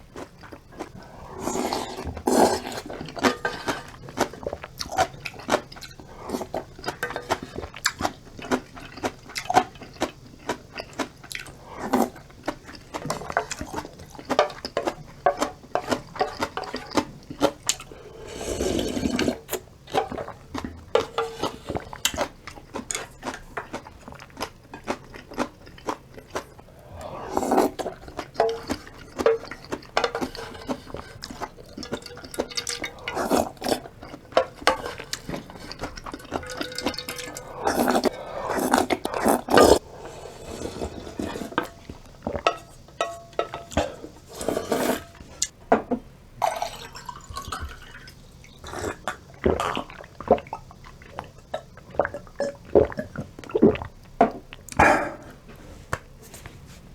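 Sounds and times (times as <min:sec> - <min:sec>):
chewing: 0:00.0 - 0:45.5
slurping noodles: 0:00.2 - 0:10.2, 0:11.0 - 0:15.0, 0:15.8 - 0:42.5, 0:43.8 - 0:45.5, 0:46.6 - 0:54.0.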